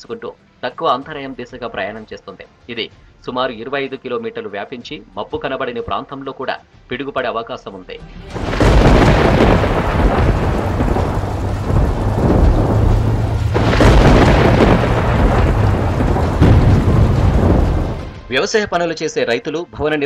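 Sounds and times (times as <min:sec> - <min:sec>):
steady rain: 0:08.3 - 0:18.2
rolling thunder: 0:08.3 - 0:18.4.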